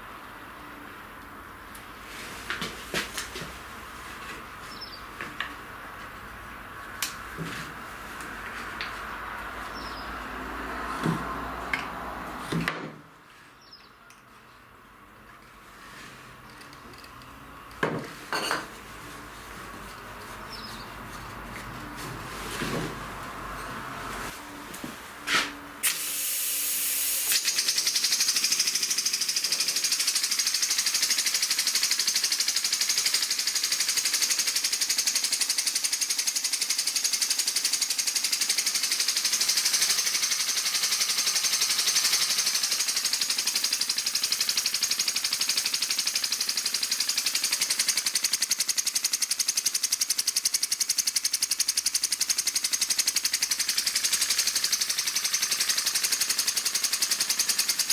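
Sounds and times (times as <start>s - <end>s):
air hissing: 25.3s - 31.8s.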